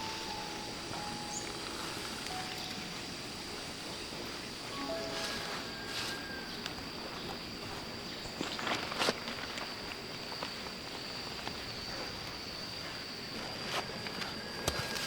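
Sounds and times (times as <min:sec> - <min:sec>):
high-pitched insect drone: 0:00.0 - 0:08.6.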